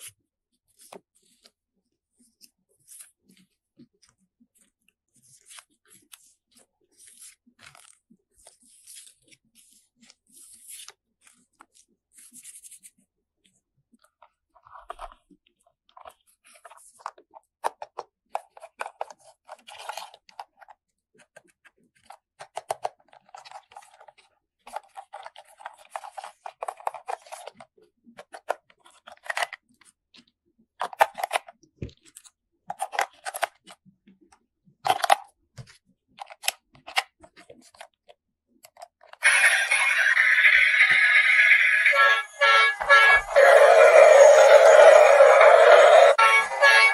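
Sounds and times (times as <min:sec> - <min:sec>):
plastic toy parts clicking: 0:32.1 - 0:33.7, 0:34.8 - 0:35.3.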